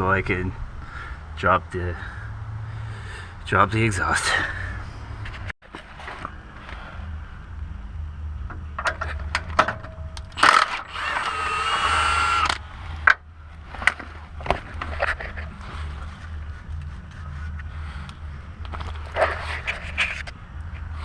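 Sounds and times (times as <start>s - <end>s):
low hum: 6.0s - 21.0s.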